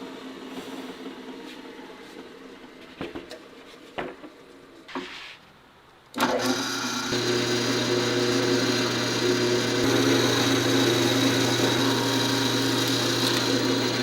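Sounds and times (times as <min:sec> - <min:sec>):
electric power tool running: 0:06.2 - 0:14.0.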